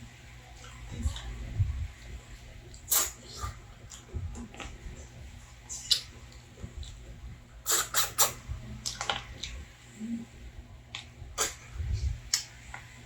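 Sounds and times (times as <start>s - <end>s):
mouth chewing and sucking: 2.7s - 4.8s, 5.7s - 6.1s, 7.6s - 9.6s, 11.4s - 11.6s.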